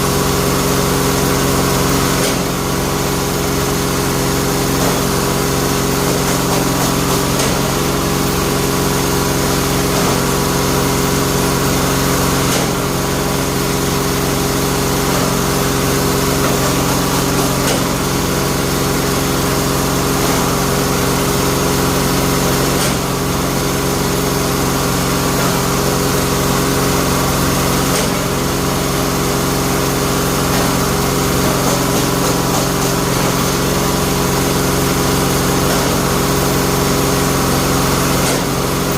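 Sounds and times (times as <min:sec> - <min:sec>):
machine motor hum: 0:00.0 - 0:38.9.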